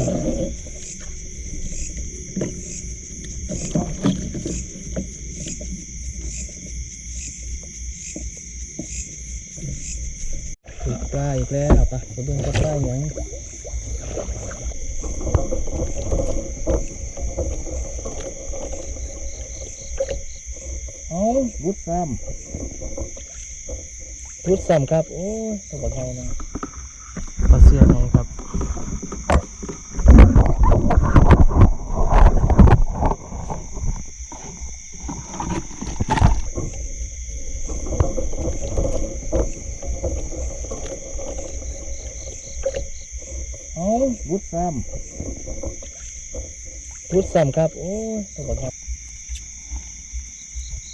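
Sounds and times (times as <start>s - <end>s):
crickets chirping: 0.0s - 50.9s
water sloshing and splashing: 0.0s - 50.9s.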